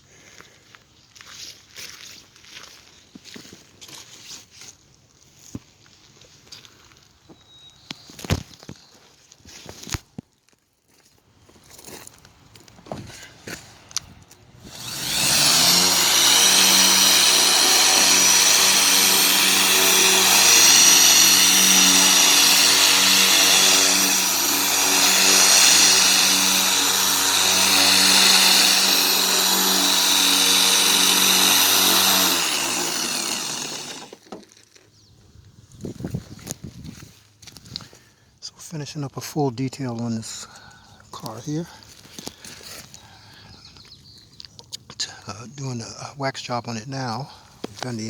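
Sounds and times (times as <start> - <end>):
electric car polisher whining: 14.6 - 34.2.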